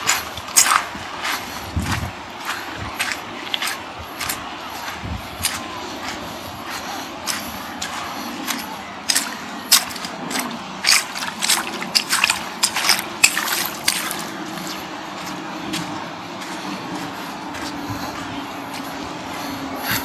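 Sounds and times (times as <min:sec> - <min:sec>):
surf washing: 0:00.0 - 0:20.0
water lapping at shore: 0:00.0 - 0:20.0
short irregular splashes: 0:07.2 - 0:17.7.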